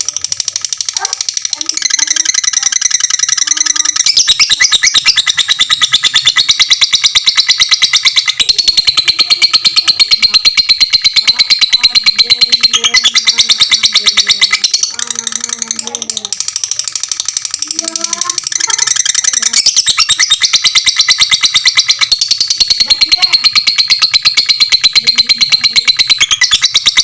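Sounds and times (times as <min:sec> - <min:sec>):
lovebird chattering trill: 0:00.0 - 0:27.0.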